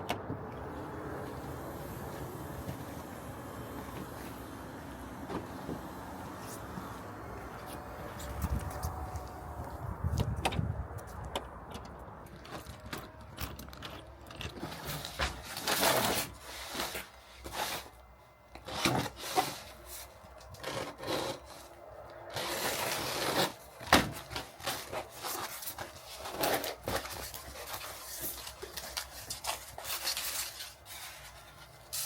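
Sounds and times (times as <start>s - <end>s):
wood scraping and rubbing: 18.6s - 21.7s, 22.3s - 32.0s.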